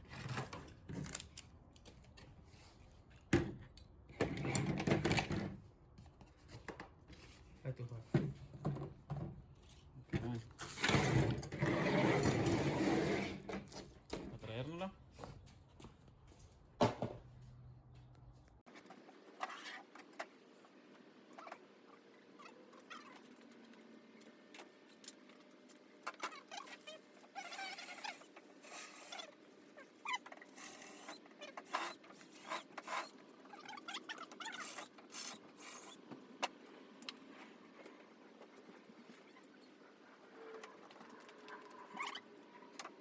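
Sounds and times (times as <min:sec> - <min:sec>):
small clicks and scrapes of handling: 0:40.4 - 0:43.0.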